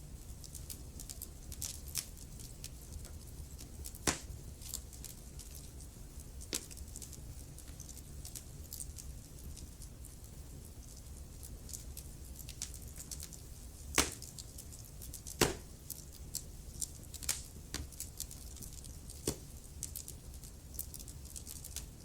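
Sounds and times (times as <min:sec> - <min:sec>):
wood fire crackling: 0:00.0 - 0:22.0
sharp pops: 0:04.0 - 0:04.3, 0:14.0 - 0:14.3, 0:15.3 - 0:15.7.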